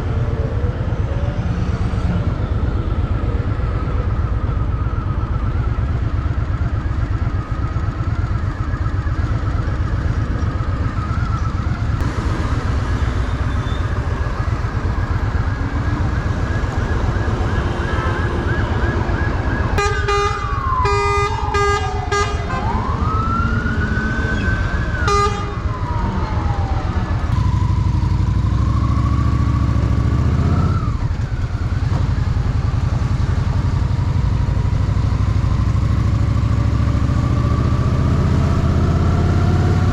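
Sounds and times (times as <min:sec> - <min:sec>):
emergency siren wailing: 0:00.0 - 0:39.9
pulsed horn blasts: 0:19.8 - 0:22.9, 0:25.0 - 0:25.8.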